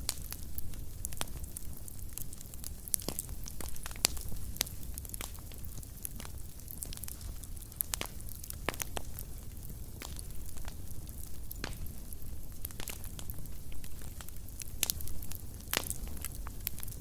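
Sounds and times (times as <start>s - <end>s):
fire crackling and popping: 0.0s - 17.0s
low rumble of flames: 0.0s - 17.0s.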